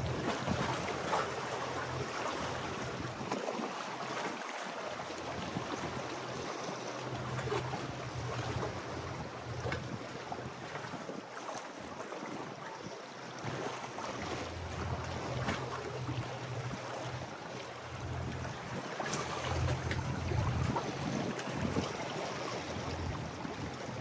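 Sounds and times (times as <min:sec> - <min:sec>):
wind buffeting microphone: 0:00.0 - 0:03.6, 0:05.2 - 0:11.2, 0:14.7 - 0:24.0
waves and moving water: 0:00.0 - 0:24.0.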